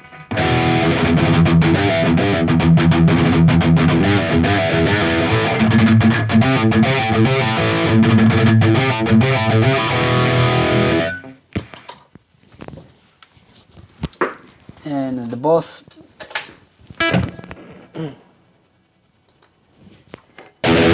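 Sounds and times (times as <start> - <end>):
distorted electric guitar riff: 0.0 - 11.4, 17.0 - 18.1, 20.5 - 20.9.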